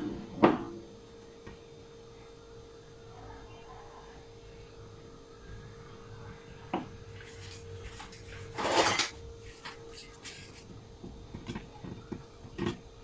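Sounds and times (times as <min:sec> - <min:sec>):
metal utensil clinking on dish: 0:07.2 - 0:10.7.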